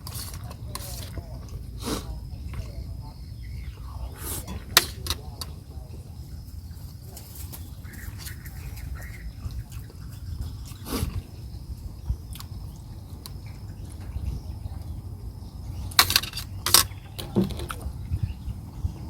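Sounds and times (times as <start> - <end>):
steady low rumble: 0.0 - 19.0
mouth eating noises: 6.4 - 14.2.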